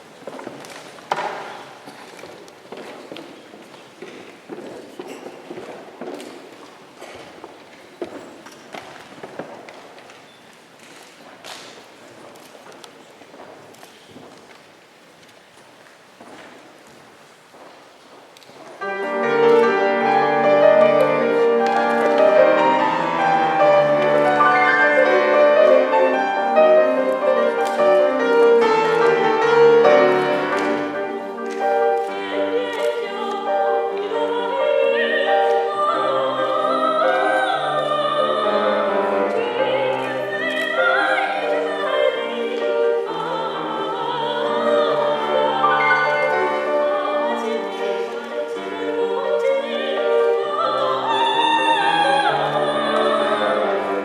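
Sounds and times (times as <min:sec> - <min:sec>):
piano accompaniment: 0:18.7 - 0:54.0
person singing in operatic style: 0:19.0 - 0:54.0.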